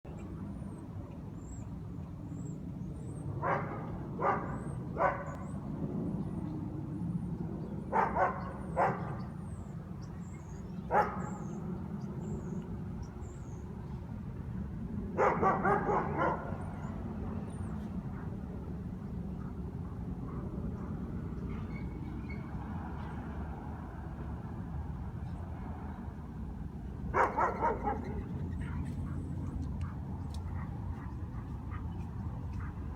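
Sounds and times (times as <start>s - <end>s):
dogs barking: 3.4s - 5.6s, 7.9s - 9.3s, 10.9s - 11.6s, 15.2s - 17.0s, 27.1s - 32.9s.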